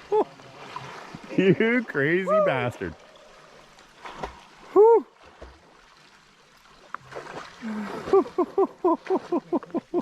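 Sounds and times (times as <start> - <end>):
man whooping cries: 2.2 - 2.6, 4.7 - 5.1.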